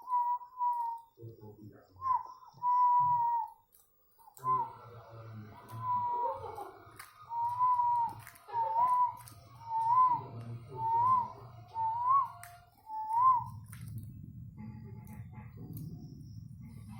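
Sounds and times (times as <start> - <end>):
dove cooing: 0.0 - 3.6, 4.4 - 14.0
low hum: 4.3 - 16.9.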